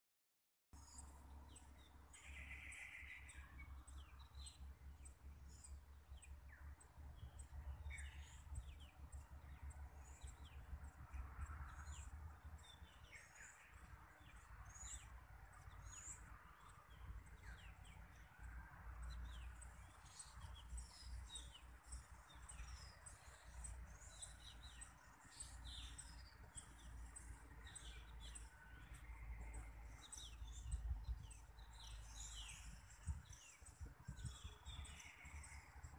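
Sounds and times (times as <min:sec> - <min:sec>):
small birds chirping: 0:00.8 - 0:35.9
low rumble on microphone: 0:22.0 - 0:35.9.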